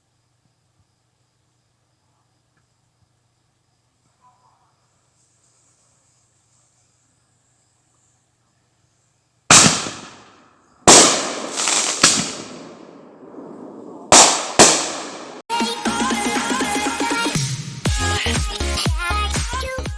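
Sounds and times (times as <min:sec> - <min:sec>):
small firework pops: 0:09.5 - 0:15.4
fireworks bangs with rumble: 0:10.9 - 0:15.4.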